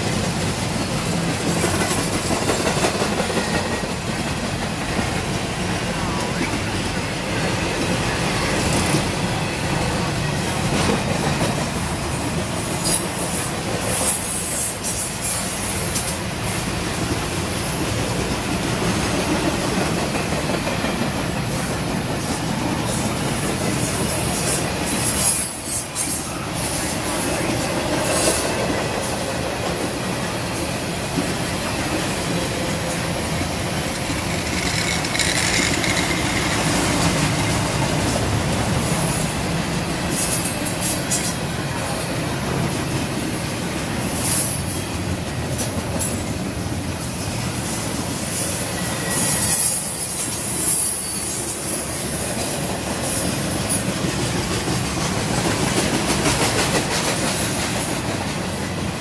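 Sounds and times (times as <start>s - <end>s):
train wheels rumbling on rail: 0.0s - 59.0s
wheel squeals: 48.3s - 51.8s.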